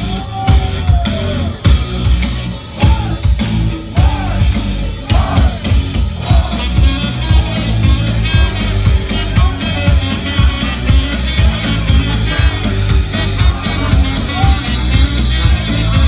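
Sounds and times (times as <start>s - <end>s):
rock band playing: 0.0s - 16.0s
person singing: 5.1s - 16.0s.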